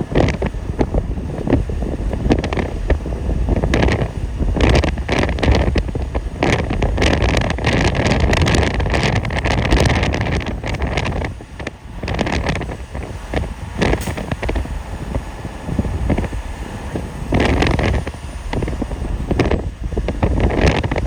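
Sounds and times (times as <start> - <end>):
vehicle road noise: 0.0 - 21.0
wind buffeting microphone: 0.0 - 21.0.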